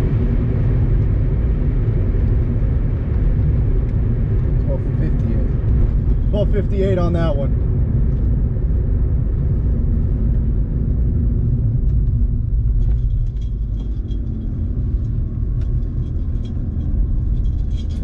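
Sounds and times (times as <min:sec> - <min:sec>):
diesel engine rumbling: 0:00.0 - 0:18.0
faint ticks and rattles: 0:11.9 - 0:18.0.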